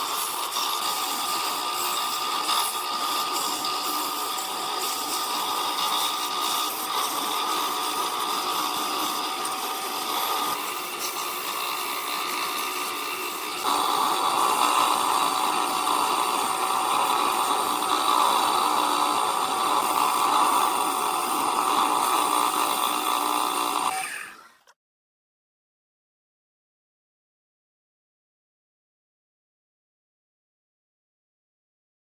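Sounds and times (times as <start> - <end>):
power tool running: 0.0 - 24.7.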